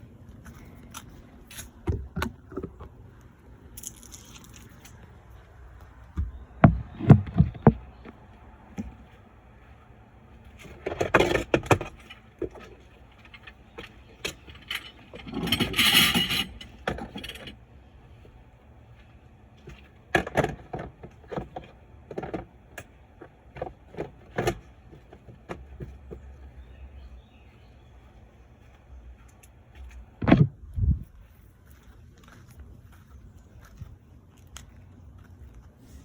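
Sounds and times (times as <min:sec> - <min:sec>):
hard objects knocking and thumping: 0:06.2 - 0:08.2, 0:30.2 - 0:30.6
rattling and scraping: 0:06.2 - 0:09.1, 0:10.4 - 0:17.6.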